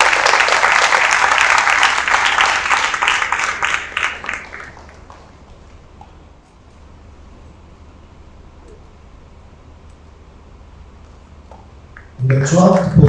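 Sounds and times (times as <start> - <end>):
audience applauding: 0.0 - 5.5, 12.0 - 13.0.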